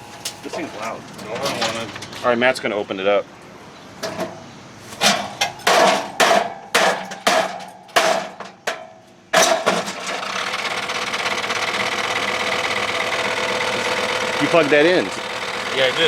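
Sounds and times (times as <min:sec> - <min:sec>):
hammer striking metal: 0:05.6 - 0:08.8
dehumidifier running: 0:10.4 - 0:16.0.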